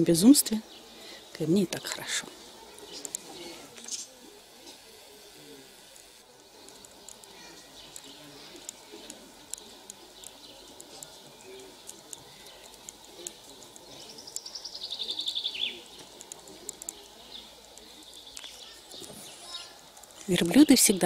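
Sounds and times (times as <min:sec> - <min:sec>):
songbird trilling: 0:06.8 - 0:16.1.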